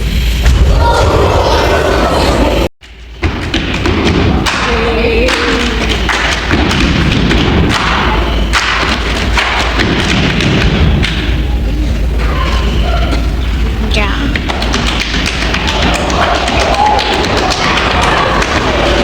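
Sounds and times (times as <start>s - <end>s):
loud low rumbling: 0.0s - 19.0s
thuds: 2.8s - 4.8s, 5.4s - 11.4s.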